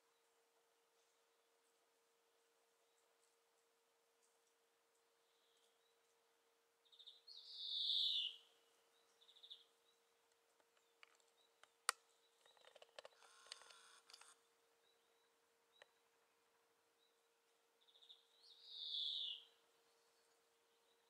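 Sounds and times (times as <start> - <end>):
bird trills: 7.0 - 8.4, 17.9 - 19.6
faint buzzing: 10.7 - 16.7.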